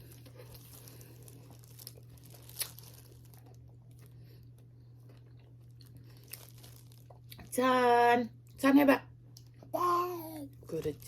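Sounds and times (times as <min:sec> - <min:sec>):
food wrapping crinkling: 0:00.0 - 0:04.3, 0:05.2 - 0:07.4.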